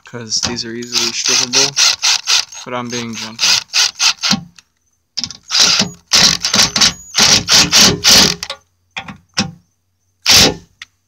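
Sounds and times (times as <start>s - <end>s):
screw gun rattling: 0.9s - 4.4s, 5.2s - 8.5s.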